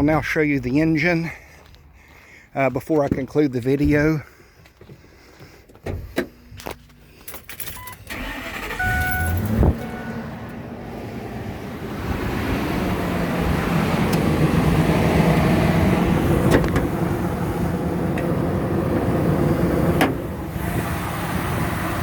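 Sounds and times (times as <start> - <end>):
truck engine idling: 5.3 - 22.0.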